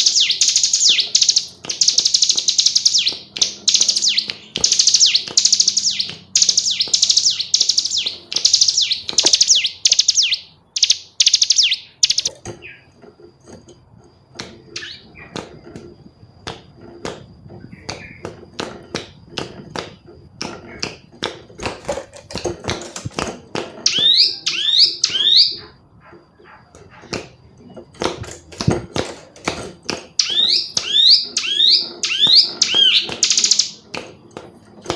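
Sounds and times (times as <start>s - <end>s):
scattered clicks: 0.0s - 12.4s, 26.7s - 34.9s
bird rapid trilling calls: 0.0s - 12.9s, 14.8s - 15.4s, 23.9s - 25.7s, 30.2s - 33.8s.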